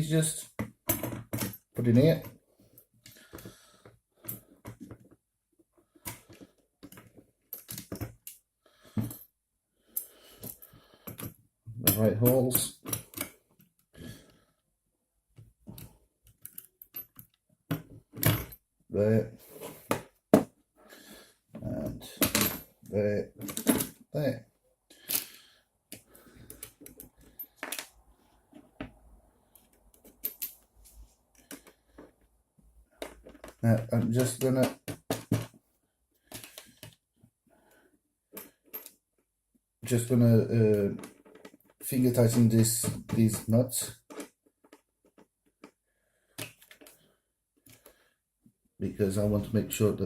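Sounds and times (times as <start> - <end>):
metal parts clicking and rattling: 23.4 - 24.0.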